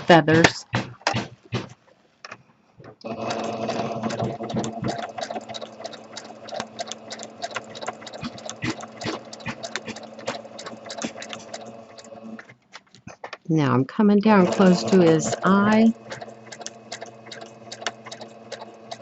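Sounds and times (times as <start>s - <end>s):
sewing machine stitching: 3.0s - 12.6s, 14.1s - 19.0s.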